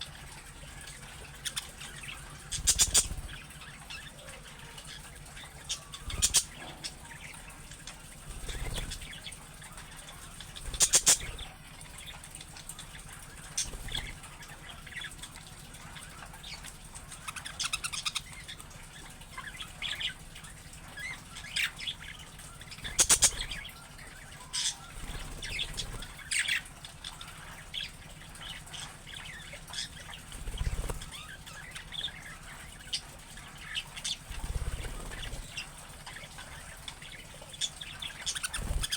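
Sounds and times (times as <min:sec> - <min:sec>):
budgerigars chirping and warbling: 0:00.0 - 0:38.9
wings fluttering: 0:00.0 - 0:38.9.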